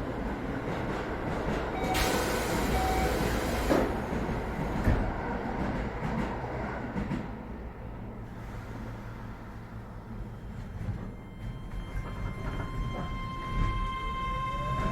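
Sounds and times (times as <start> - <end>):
train car low hum: 0.0 - 14.9
train doors hissing: 1.8 - 4.1.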